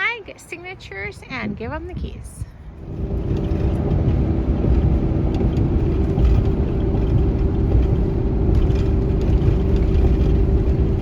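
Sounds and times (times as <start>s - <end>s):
road rumble: 0.0s - 11.0s
truck engine drone: 2.6s - 11.0s.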